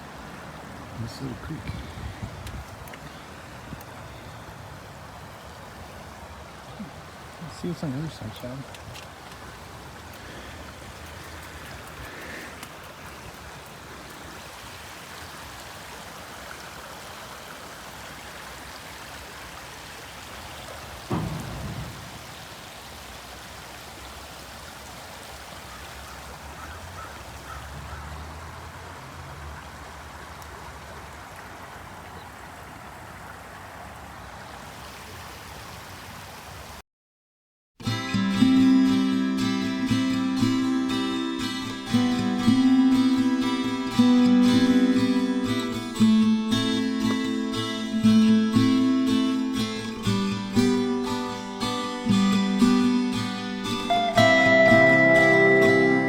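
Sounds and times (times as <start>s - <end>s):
creek water rushing: 0.0s - 36.8s, 37.8s - 56.0s
low thump: 21.1s - 22.5s.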